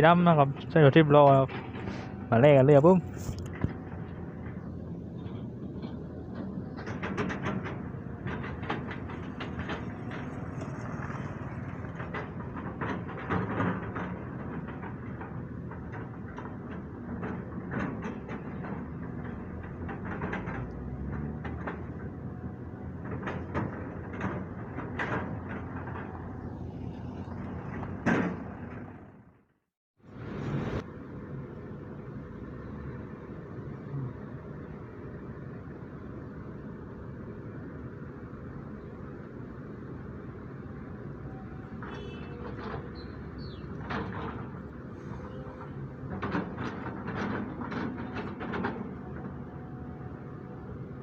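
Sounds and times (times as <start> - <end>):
excavator diesel engine running: 0.0 - 29.4, 30.1 - 51.0.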